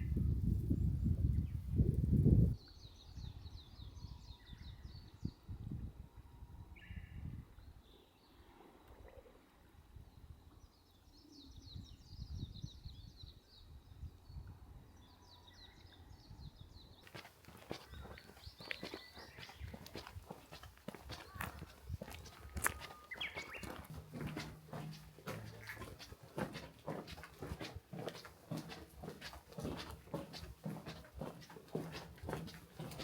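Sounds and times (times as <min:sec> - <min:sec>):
birds chirping and trilling: 0:17.2 - 0:30.4.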